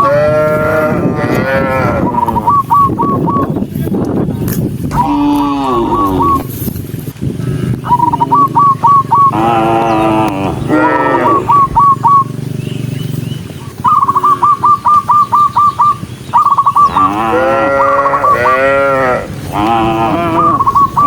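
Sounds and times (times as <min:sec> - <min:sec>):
cattle mooing: 0:00.0 - 0:02.3, 0:04.9 - 0:06.6, 0:09.2 - 0:12.0, 0:16.8 - 0:21.0.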